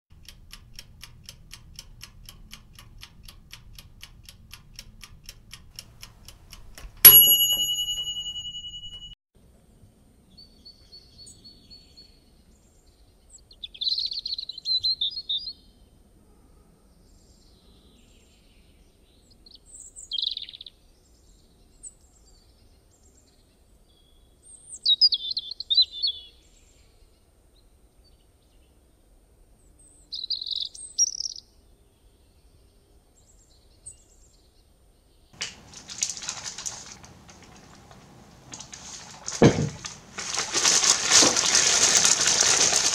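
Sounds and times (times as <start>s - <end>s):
fast even ticking: 0.1s - 9.1s
bright bell ding: 7.1s - 9.2s
short bird chirps: 30.1s - 31.4s.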